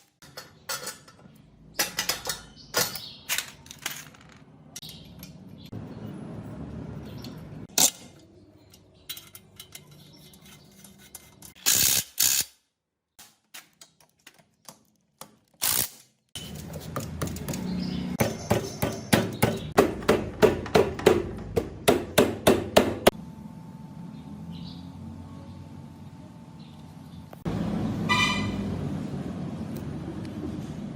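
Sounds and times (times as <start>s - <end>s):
hand tools knocking on metal: 16.5s - 23.2s
evenly spaced taps on metal: 16.6s - 23.2s.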